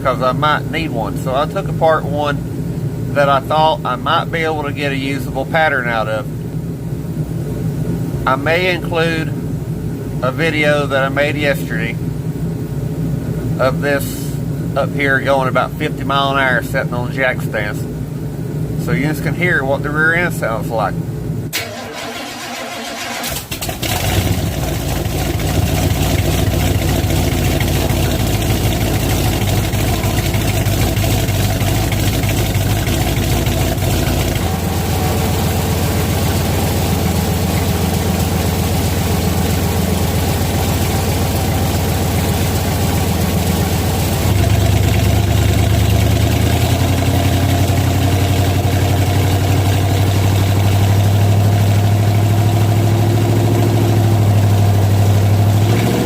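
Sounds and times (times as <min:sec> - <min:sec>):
car engine running: 0:21.5 - 0:56.0
rough gear whine: 0:21.6 - 0:54.6.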